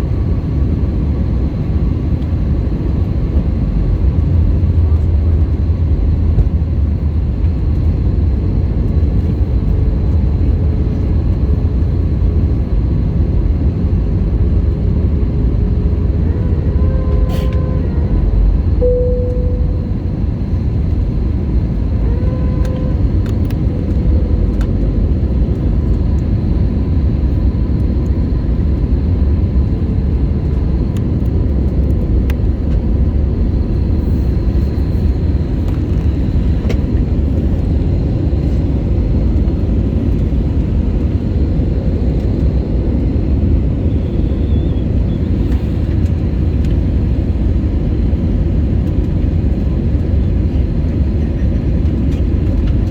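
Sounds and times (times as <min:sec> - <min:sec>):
airliner cabin engine rumble: 0:00.0 - 0:52.9
faint brief tones: 0:18.8 - 0:20.1.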